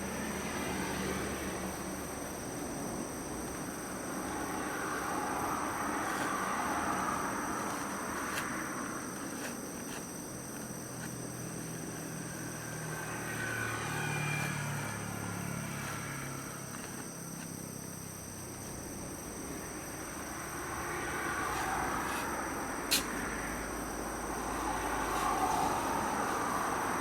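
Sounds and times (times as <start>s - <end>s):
high insect drone: 0.0s - 27.0s
road noise: 0.0s - 27.0s
vehicle engine passing: 11.8s - 17.0s.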